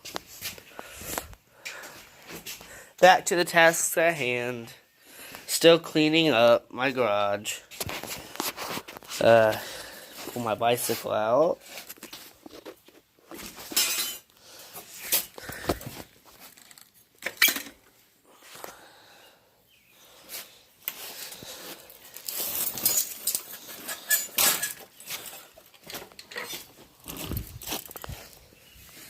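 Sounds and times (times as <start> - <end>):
metal and glass objects clinking: 13.7 - 14.3, 22.2 - 26.6.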